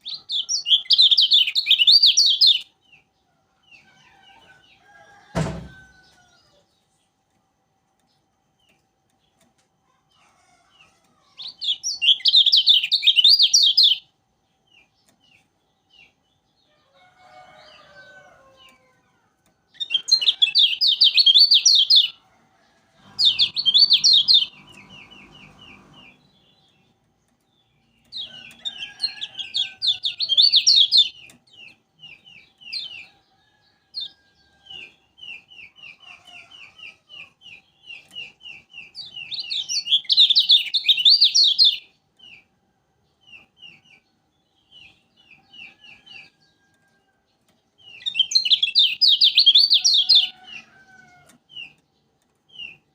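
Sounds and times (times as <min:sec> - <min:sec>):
bird singing chattering phrases: 0:00.0 - 0:03.0, 0:11.2 - 0:14.0, 0:19.4 - 0:22.2, 0:23.1 - 0:26.9, 0:27.6 - 0:33.1, 0:34.0 - 0:42.4, 0:47.8 - 0:50.6.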